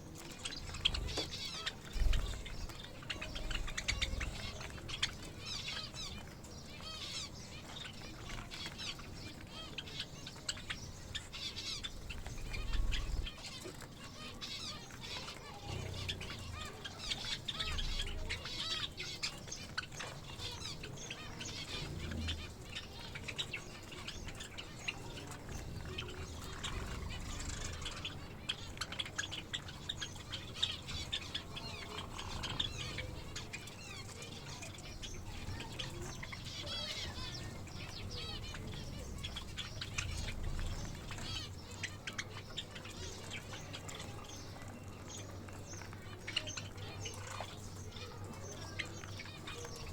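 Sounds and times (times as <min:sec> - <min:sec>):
finches chirping: 0:00.0 - 0:49.9
wings fluttering: 0:11.2 - 0:49.9.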